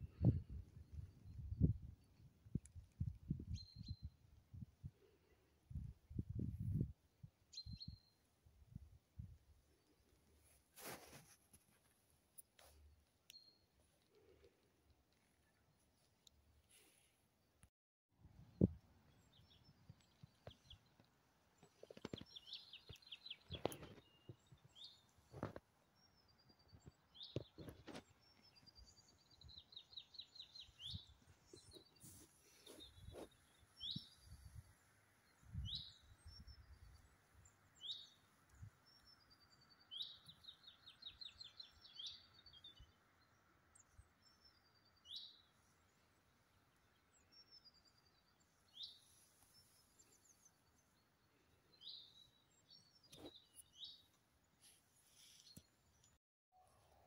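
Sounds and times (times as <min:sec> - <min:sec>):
songbird singing with trills: 0:03.3 - 0:04.2, 0:07.5 - 0:08.2, 0:26.0 - 0:45.5, 0:46.8 - 0:54.2.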